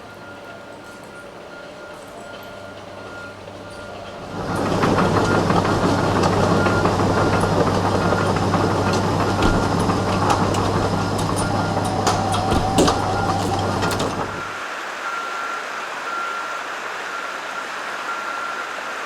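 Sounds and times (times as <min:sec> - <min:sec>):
machinery engine running: 0:02.3 - 0:14.6
metal knocks and crunches: 0:04.1 - 0:14.5.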